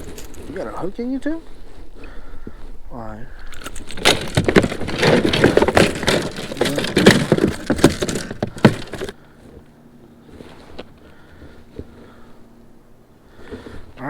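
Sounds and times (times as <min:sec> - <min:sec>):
rapid clattering and knocking: 0:03.6 - 0:09.2.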